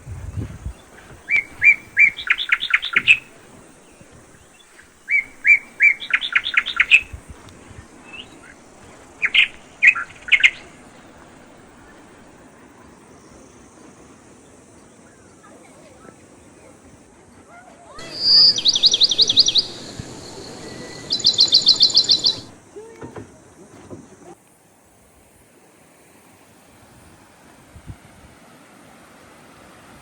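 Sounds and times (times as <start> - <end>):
songbird singing: 0.0 - 12.4, 18.0 - 22.9.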